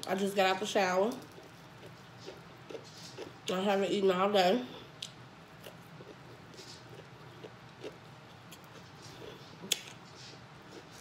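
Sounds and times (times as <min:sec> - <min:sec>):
person chewing with wet smacking: 0:01.1 - 0:03.4, 0:04.9 - 0:11.0.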